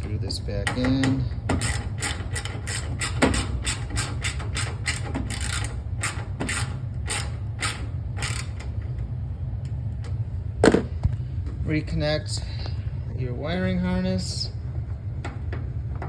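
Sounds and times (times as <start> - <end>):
screwdriver turning a screw: 0.0 - 8.8
steady low hum: 0.0 - 16.0.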